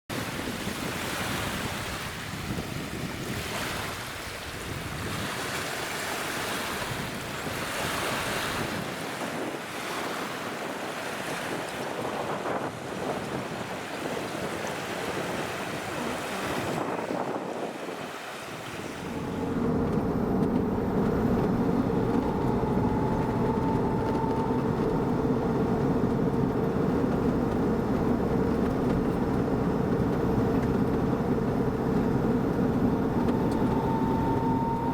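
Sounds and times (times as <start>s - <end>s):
lake waves washing in: 0.1s - 34.9s
wind on microphone: 0.1s - 34.9s
truck engine driving: 19.0s - 34.9s.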